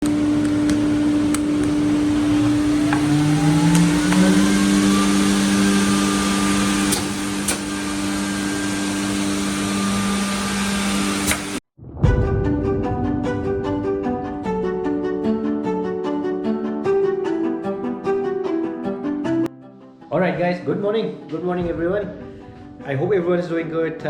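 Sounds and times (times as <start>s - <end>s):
machinery motor humming: 0.0s - 11.6s
noisy whir: 0.0s - 11.6s
second motor speeding up: 0.4s - 11.6s.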